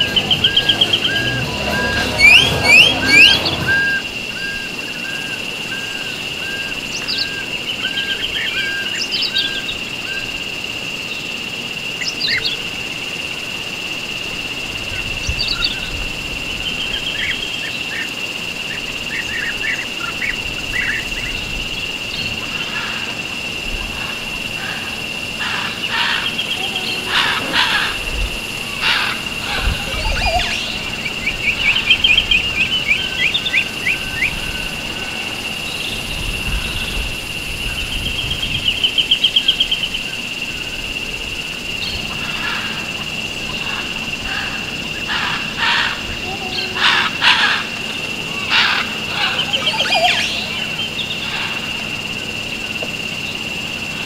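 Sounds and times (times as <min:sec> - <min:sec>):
high-pitched drone: 0:00.0 - 0:04.9, 0:24.3 - 0:32.0
wild birds calling: 0:00.0 - 0:12.9, 0:15.2 - 0:54.0.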